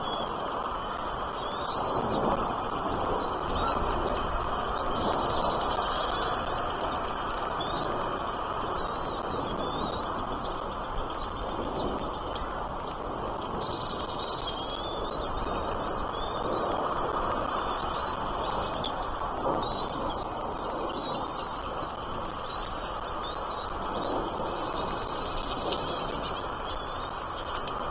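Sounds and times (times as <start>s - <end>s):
steady rushing background noise: 0.0s - 27.9s
small birds chirping: 2.9s - 27.9s.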